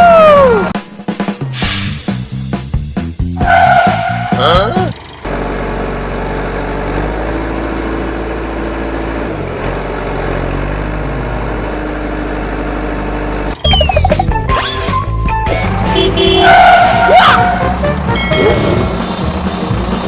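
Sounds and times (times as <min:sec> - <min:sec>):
heavy vehicle engine idling: 0:04.8 - 0:13.9
falling whistle effects: 0:13.6 - 0:14.2
cartoon music: 0:13.6 - 0:15.1.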